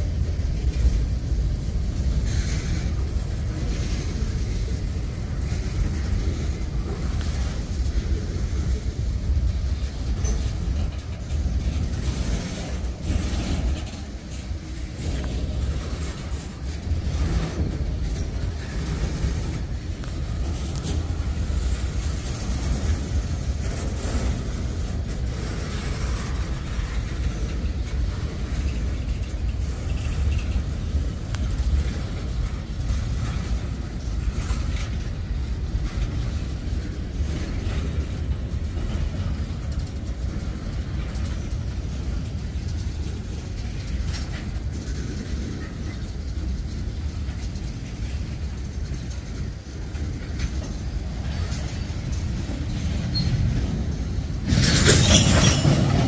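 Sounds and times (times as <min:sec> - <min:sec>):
freight train wheels rumbling on rails: 0:00.0 - 0:56.0.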